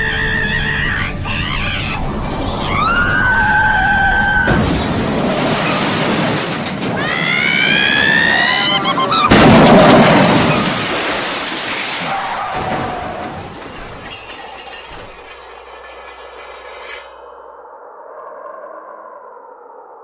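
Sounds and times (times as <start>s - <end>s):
high-pitched wail: 0.0s - 4.7s, 6.9s - 9.4s
cartoon crash: 2.7s - 15.8s
loud smash: 4.5s - 7.9s, 9.3s - 15.8s.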